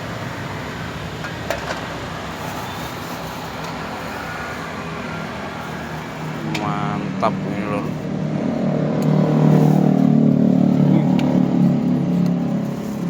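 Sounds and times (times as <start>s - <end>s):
busy road traffic: 0.0s - 13.0s.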